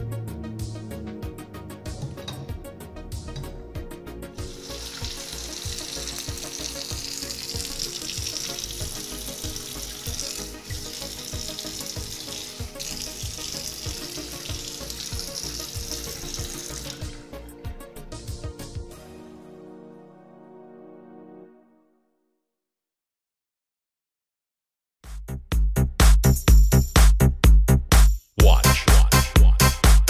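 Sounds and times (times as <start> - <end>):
background music with steady beat: 0.0 - 20.0, 25.0 - 30.0
water running from faucet into sink: 4.4 - 17.4.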